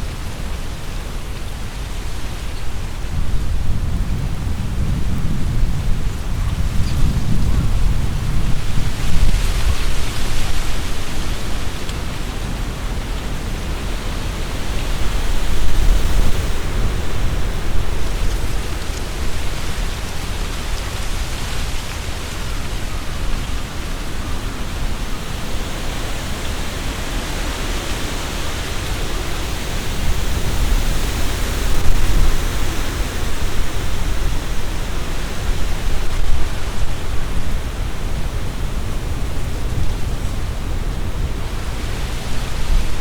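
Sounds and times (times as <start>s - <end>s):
wind rustling tree leaves: 0.0s - 43.0s.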